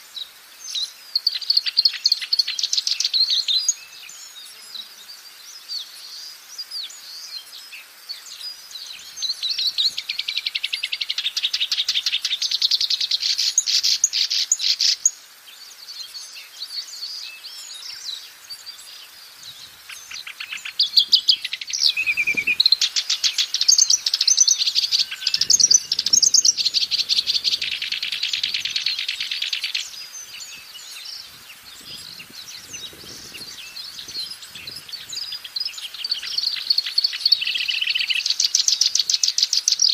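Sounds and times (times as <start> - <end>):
warbler singing: 0.0 - 39.9.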